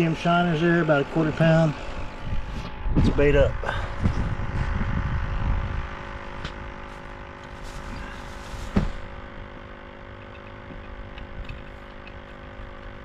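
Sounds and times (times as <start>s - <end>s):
steady tonal hum: 0.0s - 13.0s
camera toppling knock: 8.6s - 9.1s.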